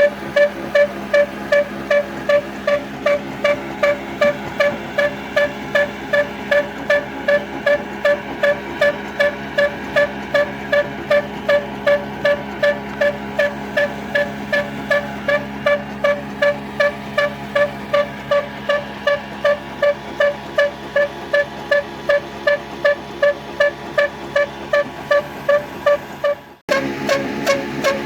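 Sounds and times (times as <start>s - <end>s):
stationary engine beating: 0.0s - 28.0s.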